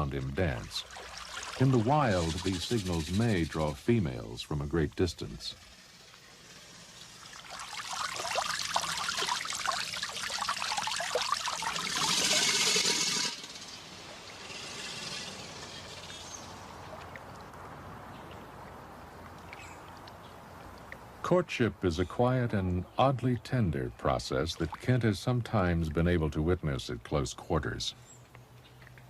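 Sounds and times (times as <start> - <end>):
water splashing in droplets: 0.0 - 3.6, 7.0 - 12.9
steady hiss of water: 0.0 - 21.3.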